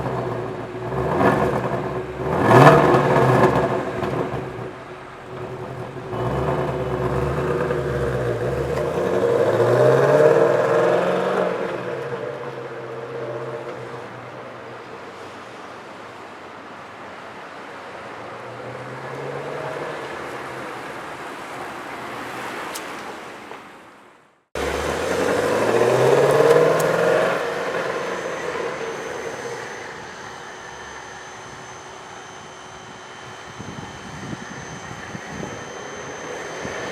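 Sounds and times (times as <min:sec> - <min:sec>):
car engine revving: 0:00.0 - 0:15.0, 0:24.6 - 0:36.9.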